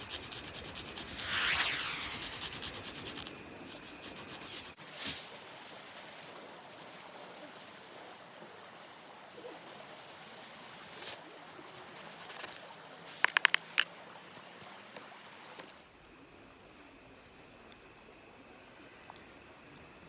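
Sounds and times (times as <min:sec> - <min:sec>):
faint hiss: 0:00.0 - 0:15.8
thin high whine: 0:01.0 - 0:05.3.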